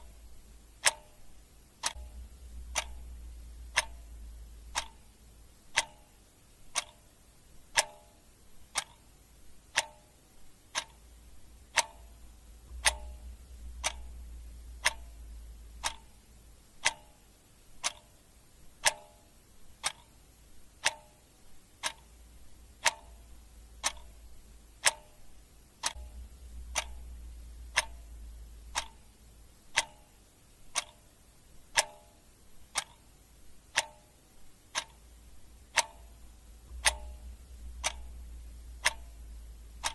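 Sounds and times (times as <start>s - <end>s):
clock ticking: 0.0s - 39.9s
faint low rumble: 0.0s - 39.9s.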